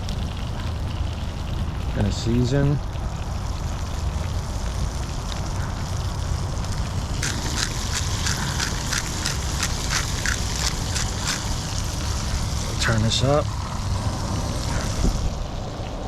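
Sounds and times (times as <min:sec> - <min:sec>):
low rumble: 0:02.9 - 0:16.0
seasoning shaker rattling: 0:07.2 - 0:12.2.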